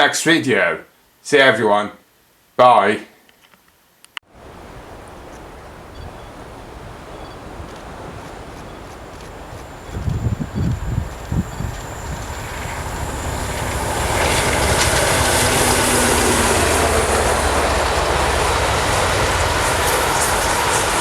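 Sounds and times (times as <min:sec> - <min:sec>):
train passing: 0:06.8 - 0:21.0.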